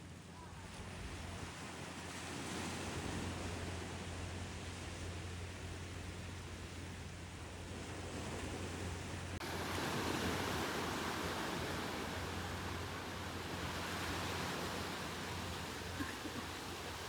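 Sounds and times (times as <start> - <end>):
ocean surf rushing: 7.6 - 17.0.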